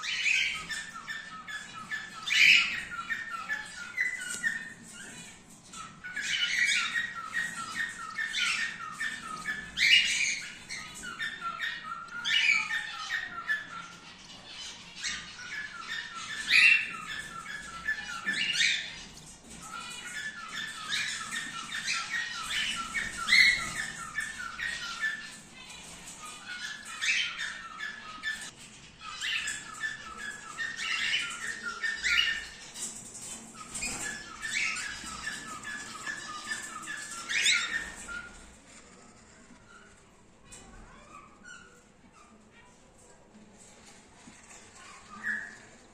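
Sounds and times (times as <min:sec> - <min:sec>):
cockatiels chattering: 0:00.0 - 0:45.9.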